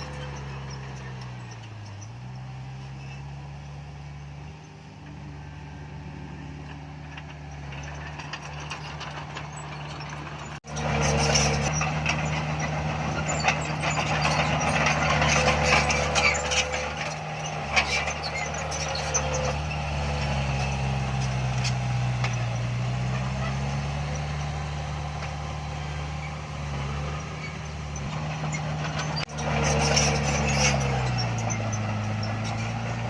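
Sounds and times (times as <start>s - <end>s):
diesel engine of heavy machinery: 0.0s - 33.0s
clattering and rattling: 6.7s - 33.0s.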